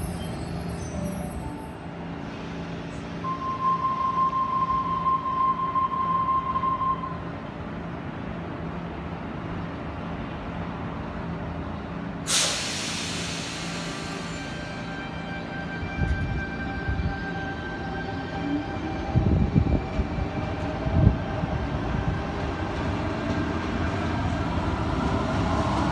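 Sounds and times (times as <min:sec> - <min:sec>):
train low hum: 0:00.0 - 0:25.9
steady high tone: 0:03.2 - 0:07.3
air release hiss: 0:12.3 - 0:14.6.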